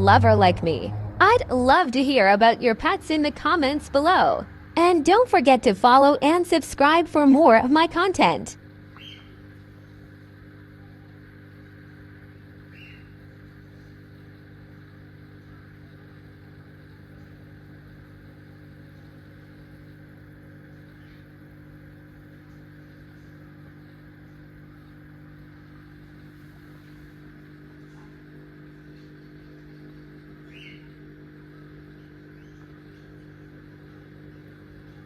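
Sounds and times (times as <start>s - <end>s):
electrical hum: 0.0s - 35.0s
faint chirp: 8.9s - 10.0s, 12.6s - 13.9s, 30.3s - 35.0s.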